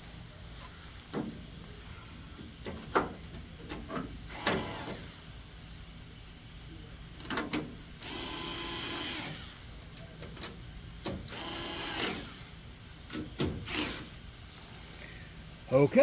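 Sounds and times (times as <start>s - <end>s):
power drill running: 8.0s - 9.6s, 11.3s - 12.6s.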